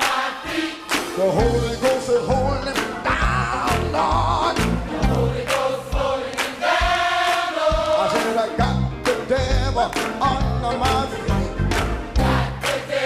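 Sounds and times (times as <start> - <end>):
voices singing with vibrato: 0.0 - 2.3, 3.1 - 8.8, 12.2 - 13.0
drum beat: 1.0 - 12.7
bass: 1.4 - 5.4, 8.6 - 12.6.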